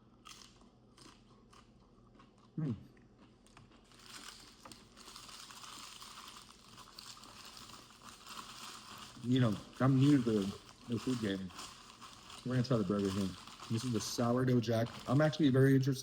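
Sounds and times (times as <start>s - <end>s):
paper wrapper crinkling: 3.8s - 16.0s.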